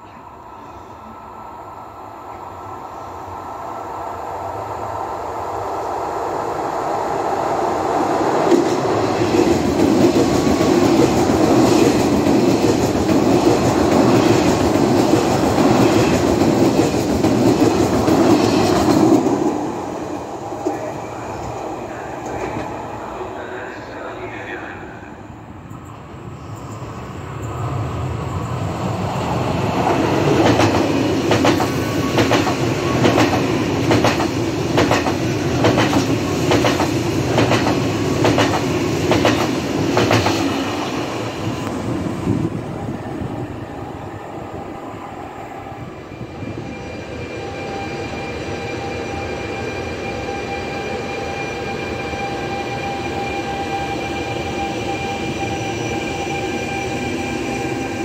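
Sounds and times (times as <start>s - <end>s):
rush of train wheels on rail: 4.4s - 24.8s, 26.0s - 58.0s.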